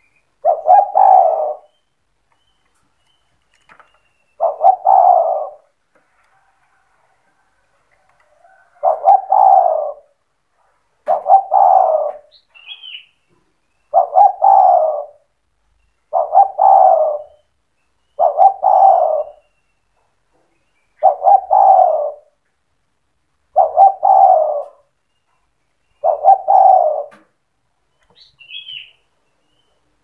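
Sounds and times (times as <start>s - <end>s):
dove cooing: 0.4s - 1.8s, 4.4s - 5.8s, 8.2s - 10.2s, 11.0s - 13.0s, 13.9s - 15.3s, 16.1s - 17.5s, 18.1s - 19.6s, 21.0s - 22.4s, 23.5s - 25.0s, 26.0s - 27.4s.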